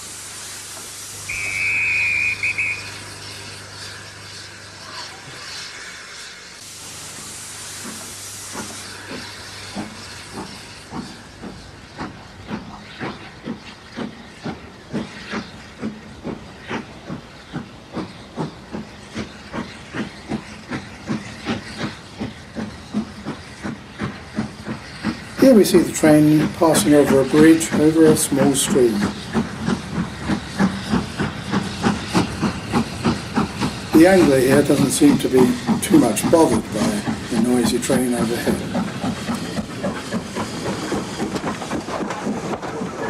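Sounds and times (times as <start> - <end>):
locomotive exhaust chuffs: 0.0 - 43.0
steam hiss: 0.0 - 43.0
steam locomotive whistle: 1.2 - 3.6.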